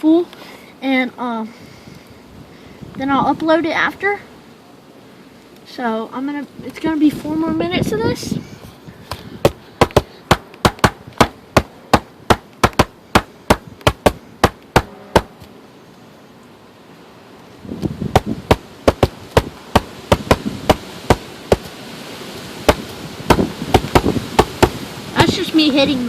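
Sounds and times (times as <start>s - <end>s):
low rumble of wind: 0.0s - 26.0s
hand knocking on cardboard: 9.1s - 15.3s, 18.1s - 21.7s, 22.7s - 24.8s.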